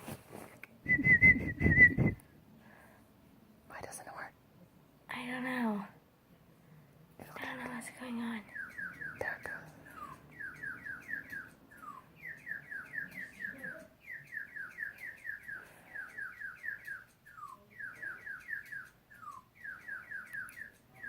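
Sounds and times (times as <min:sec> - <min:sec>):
electronic bird chirping: 0:08.5 - 0:21.0.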